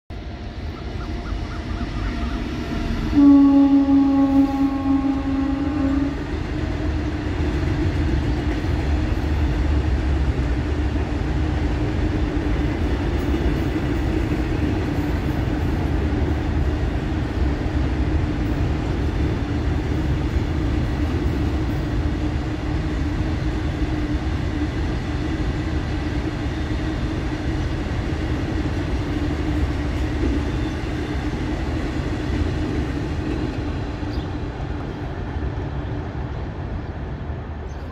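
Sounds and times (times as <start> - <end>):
steel wheels running on rails: 6.0 - 35.6.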